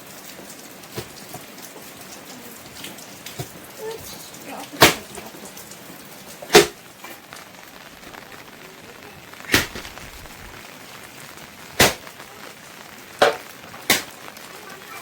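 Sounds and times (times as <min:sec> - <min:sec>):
rain hissing: 0:00.0 - 0:15.0
sharp knocks: 0:11.8 - 0:12.0, 0:13.2 - 0:14.1.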